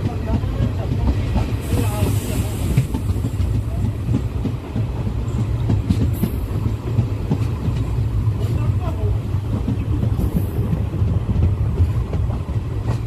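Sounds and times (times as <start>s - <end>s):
rail clicks: 0.0s - 13.0s
train wheels rumbling on rails: 0.0s - 13.0s
rushing hiss: 1.4s - 4.2s.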